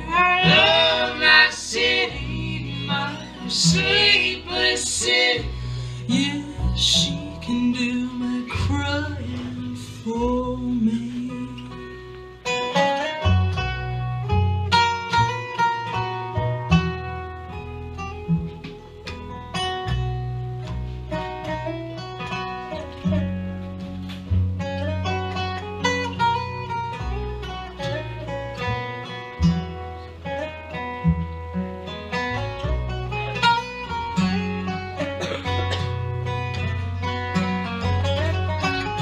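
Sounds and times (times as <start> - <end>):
bass line: 0.0 - 39.0
picked acoustic guitar: 0.0 - 39.0.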